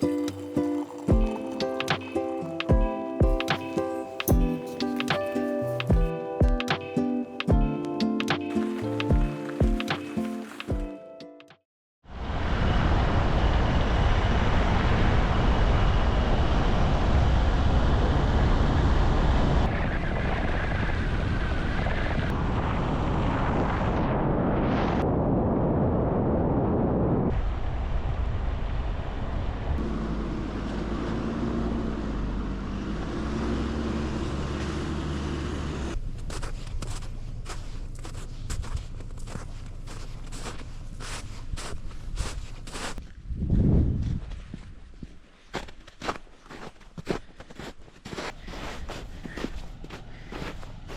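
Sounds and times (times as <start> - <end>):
wind buffeting microphone: 41.6 - 45.2.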